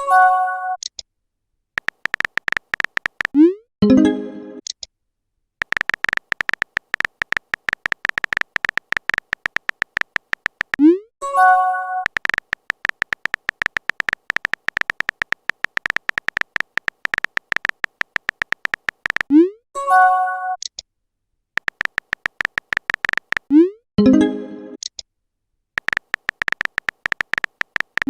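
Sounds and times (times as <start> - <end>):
typing beeping clicks: 1.8 - 3.6, 5.6 - 19.5, 21.6 - 23.7, 25.8 - 28.0.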